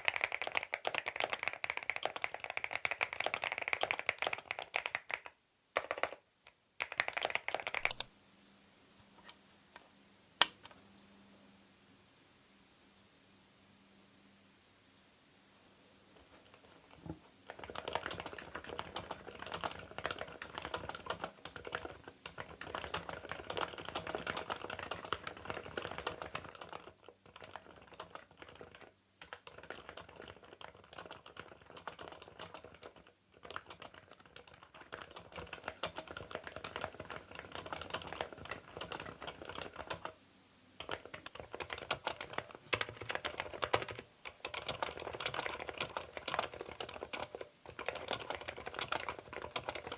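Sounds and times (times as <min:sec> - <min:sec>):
fast typing on mechanical keyboard: 0:00.0 - 0:06.2, 0:06.8 - 0:08.1, 0:17.4 - 0:40.2, 0:40.8 - 0:49.9.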